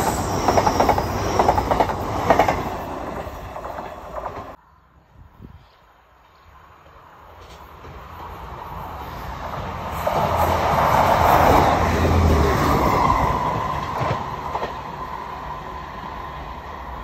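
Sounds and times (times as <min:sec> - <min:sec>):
wheels on rail: 0:00.0 - 0:04.6, 0:05.4 - 0:17.0
train engine rumble: 0:00.0 - 0:17.0.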